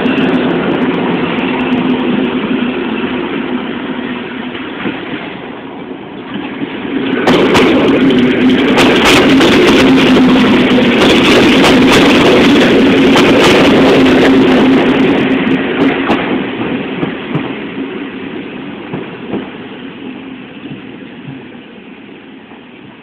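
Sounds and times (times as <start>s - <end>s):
passenger train passing at speed: 0.0s - 23.0s
wheels clicking on rails: 6.2s - 17.6s.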